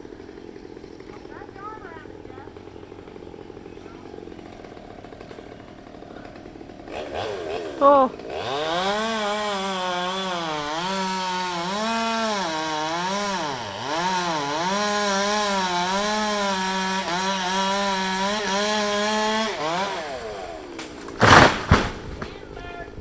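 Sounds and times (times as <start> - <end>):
chainsaw cutting branch: 0.0 - 22.4
branch crashing to ground: 20.8 - 22.4.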